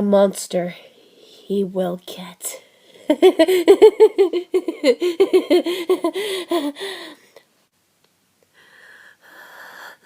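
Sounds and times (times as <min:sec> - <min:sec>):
woman laughing: 0:03.0 - 0:07.2.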